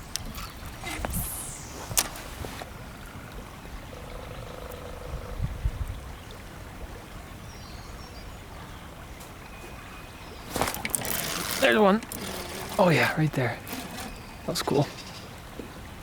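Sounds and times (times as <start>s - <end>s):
water lapping: 0.0s - 2.8s, 10.2s - 16.0s.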